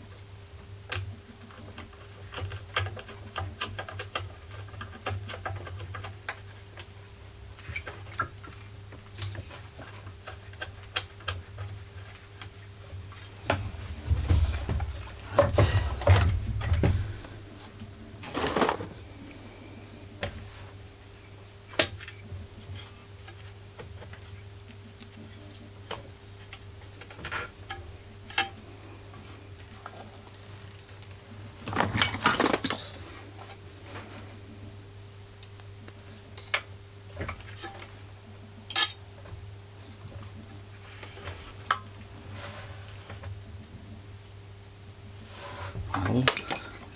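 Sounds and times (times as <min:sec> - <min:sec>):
faint steady hum: 0:00.0 - 0:46.9
metal clinking and rattling: 0:46.3 - 0:46.8.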